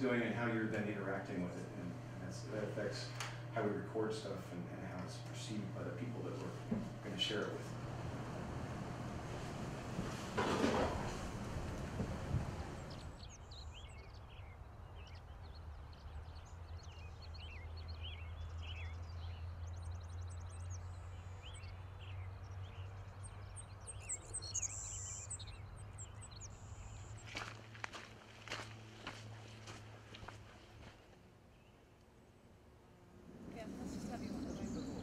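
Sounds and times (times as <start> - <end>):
low steady hum: 0.0 - 35.0
small birds chirping: 12.2 - 32.1, 33.4 - 35.0.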